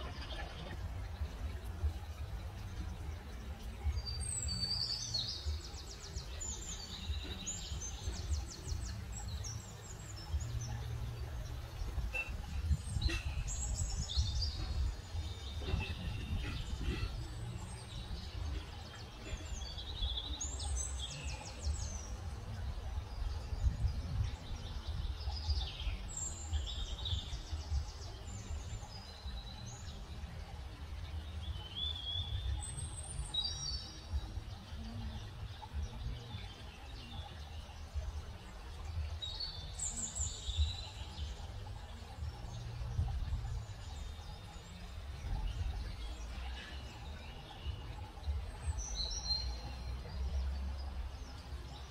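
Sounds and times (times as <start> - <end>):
songbirds chirping and singing: 0.0 - 51.9.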